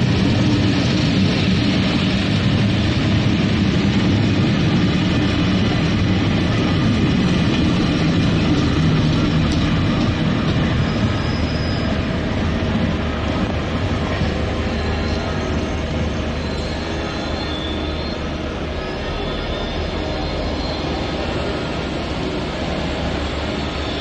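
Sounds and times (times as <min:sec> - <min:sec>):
train coaches rumbling past: 0:00.0 - 0:24.0
faint high squeal: 0:10.6 - 0:12.2, 0:14.0 - 0:21.6.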